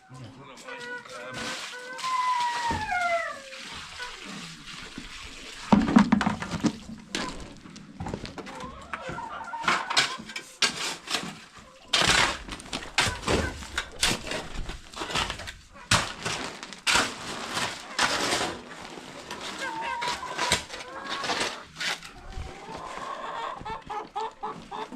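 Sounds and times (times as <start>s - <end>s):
knocks and scrapes of building work: 0.0s - 24.9s
water splashing: 1.0s - 8.0s.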